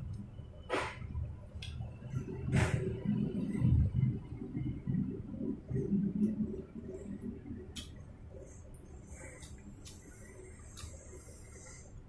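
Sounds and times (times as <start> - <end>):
low background rumble: 0.0 - 12.0
wet lip-smacking chewing: 9.2 - 11.3.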